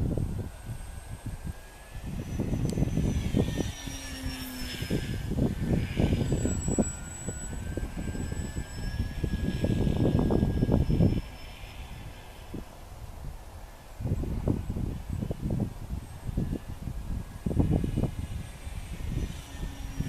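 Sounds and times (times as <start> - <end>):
model airplane motor whine: 0.0 - 20.0
wind buffeting microphone: 0.0 - 20.0.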